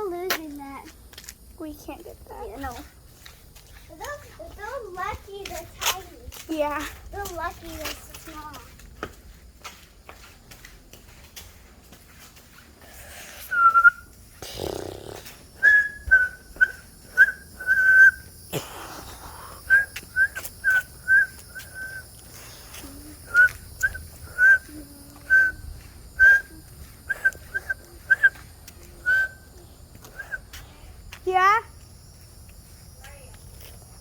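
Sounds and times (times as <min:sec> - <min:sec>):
high whistled chirps: 0:13.3 - 0:14.2, 0:15.6 - 0:30.6.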